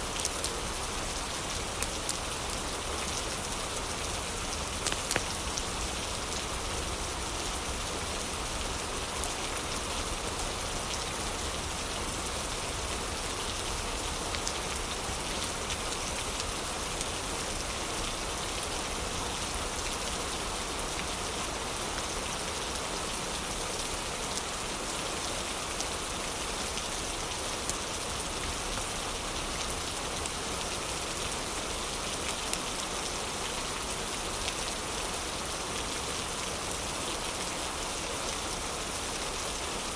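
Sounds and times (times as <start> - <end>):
heavy rain: 0.0 - 39.9
wood fire crackling: 4.6 - 5.6.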